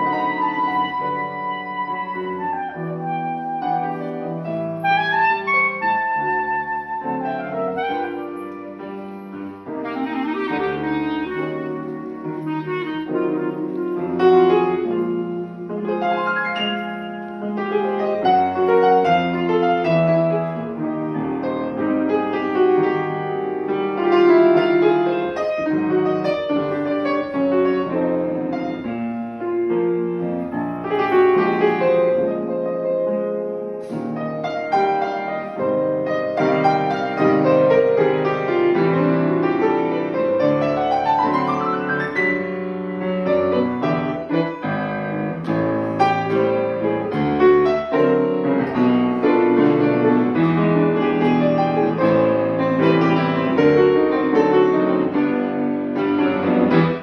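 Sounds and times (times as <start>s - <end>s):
woodwind melody: 0.0s - 23.3s, 24.0s - 42.6s
piano: 0.0s - 57.0s.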